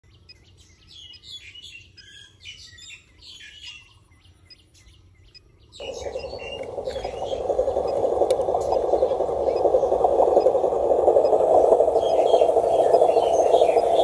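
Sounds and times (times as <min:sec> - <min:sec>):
small birds chirping: 0:00.0 - 0:14.0
steady whirring noise: 0:05.7 - 0:14.0.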